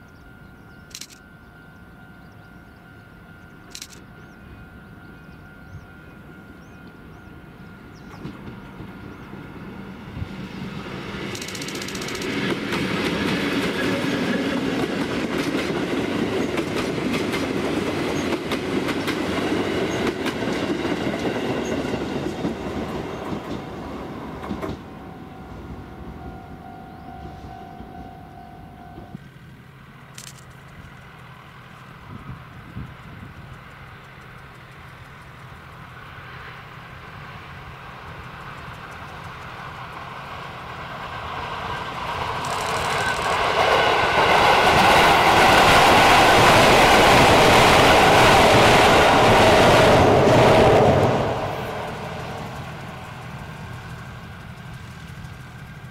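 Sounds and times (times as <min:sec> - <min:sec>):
train wheels clattering over rail joints: 0:11.2 - 0:24.9, 0:41.4 - 0:48.2.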